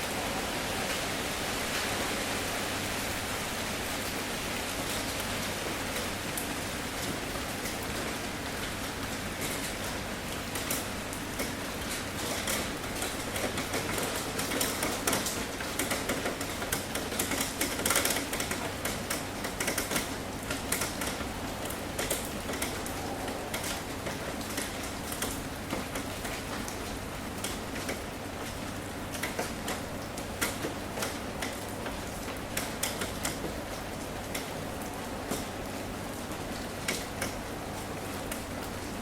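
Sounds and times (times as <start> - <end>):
rain on a tin roof: 0.0 - 39.0.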